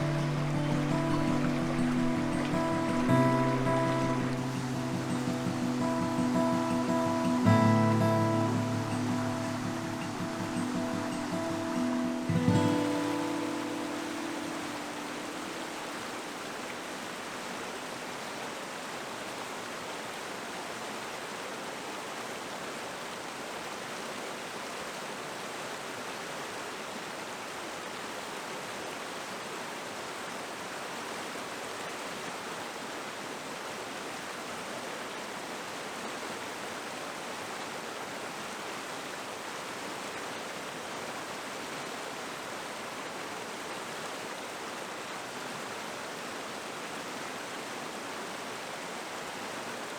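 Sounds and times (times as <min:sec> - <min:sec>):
river water rushing: 0:00.0 - 0:49.9.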